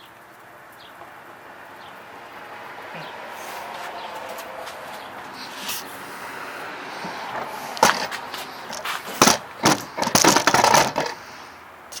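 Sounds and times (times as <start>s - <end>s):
steady hiss: 4.9s - 10.0s
sharp knocks and clatters: 7.0s - 11.2s.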